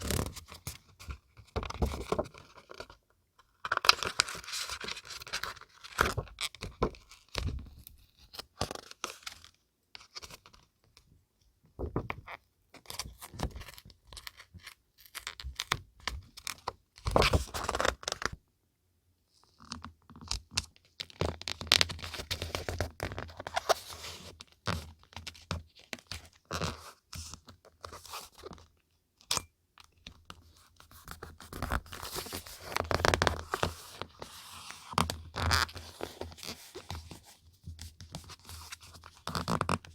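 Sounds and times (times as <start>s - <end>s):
paper rustling and crinkling: 31.0s - 39.9s.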